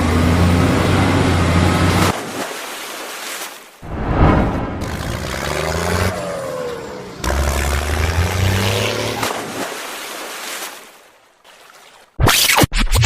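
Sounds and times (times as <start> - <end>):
vehicle engine revving: 4.0 - 9.3.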